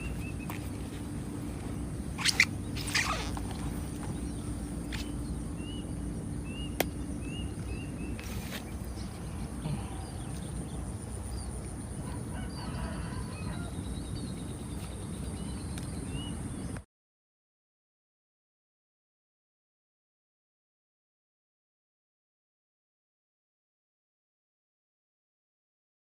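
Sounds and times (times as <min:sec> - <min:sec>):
continuous high-pitched buzz: 0:00.0 - 0:16.8
small birds chirping: 0:00.0 - 0:16.8
steady low background noise: 0:00.0 - 0:16.8.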